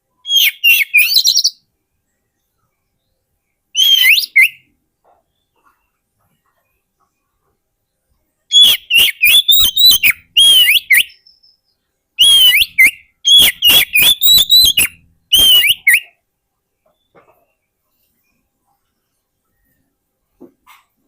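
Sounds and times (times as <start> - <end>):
bird singing whistled notes: 0.1 - 1.7, 2.4 - 4.7, 8.5 - 16.2.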